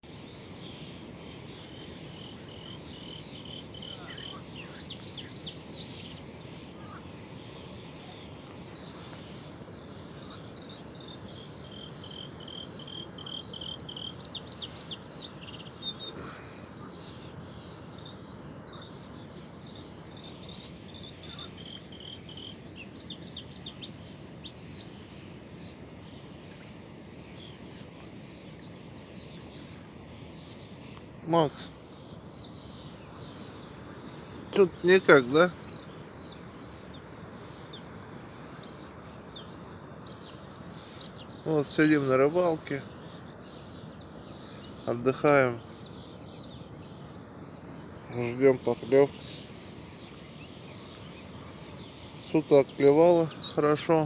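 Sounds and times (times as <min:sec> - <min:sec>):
birds chirping: 0:00.0 - 0:54.0
insects chirping: 0:00.2 - 0:25.3, 0:30.7 - 0:54.0
steady low hiss: 0:00.2 - 0:54.0.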